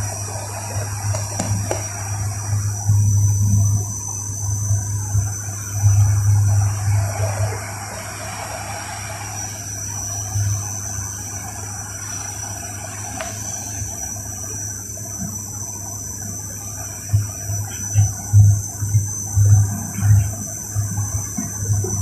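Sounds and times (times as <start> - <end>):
airliner cabin noise: 0.0 - 4.1.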